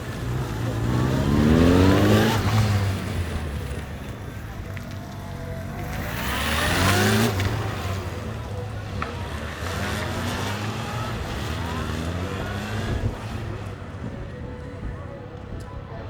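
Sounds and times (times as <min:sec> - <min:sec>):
motorcycle engines revving: 0:00.0 - 0:15.8.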